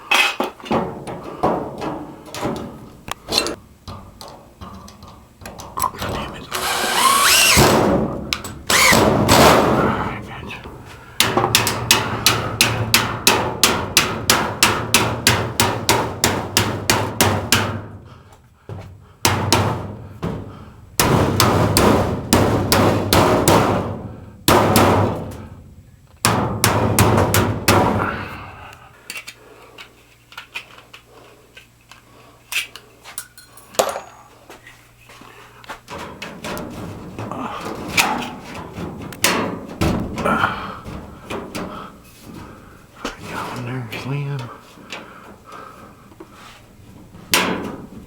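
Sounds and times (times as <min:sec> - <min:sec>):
rapid hammer strikes: 0:06.2 - 0:10.0, 0:11.2 - 0:18.0, 0:19.2 - 0:25.3, 0:26.2 - 0:28.1.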